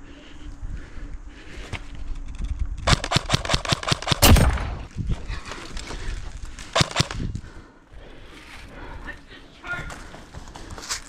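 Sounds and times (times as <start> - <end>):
airsoft rifle firing bursts: 2.9 - 4.9, 6.7 - 7.2.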